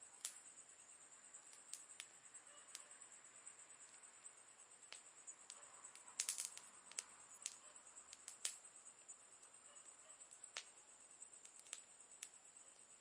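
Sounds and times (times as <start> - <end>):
wood fire crackling and popping: 0.2 - 0.5, 1.5 - 2.2, 4.8 - 8.7, 10.2 - 13.0.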